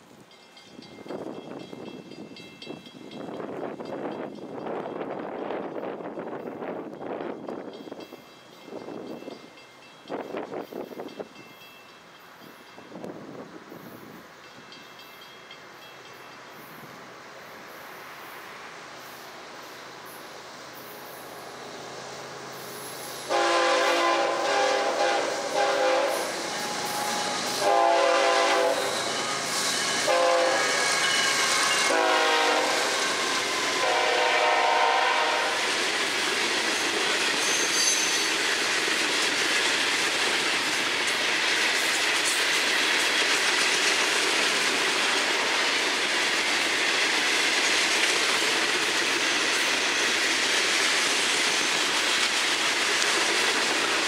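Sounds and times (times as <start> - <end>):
train wheels clattering on rails: 0.0 - 21.5, 22.2 - 54.0
locomotive air horn blasts: 23.2 - 35.7.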